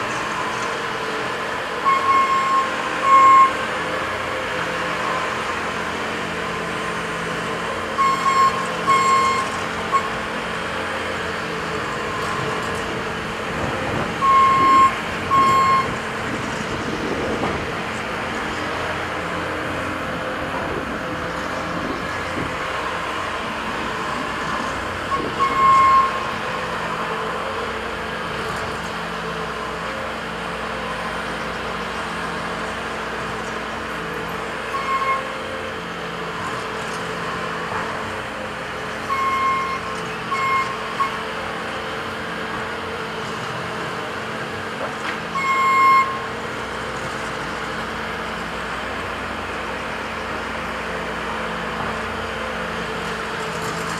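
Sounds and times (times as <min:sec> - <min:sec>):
construction machinery engines: 0:00.0 - 0:53.9
short high beeps: 0:01.9 - 0:03.6, 0:08.0 - 0:10.1, 0:34.7 - 0:35.2, 0:39.1 - 0:41.2.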